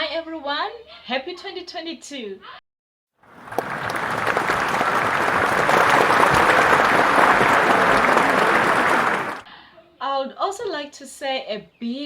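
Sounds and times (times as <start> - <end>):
crowd applauding: 3.2 - 9.5.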